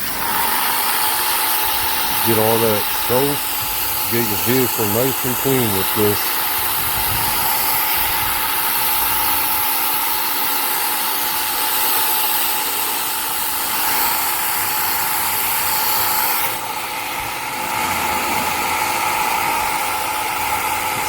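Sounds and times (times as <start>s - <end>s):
pressure washer motor whining: 0.0s - 21.0s
water jet spraying onto a car: 0.0s - 21.0s.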